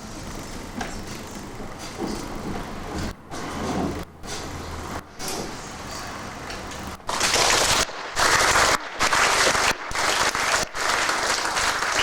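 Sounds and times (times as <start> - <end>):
audience clapping: 7.1 - 12.0.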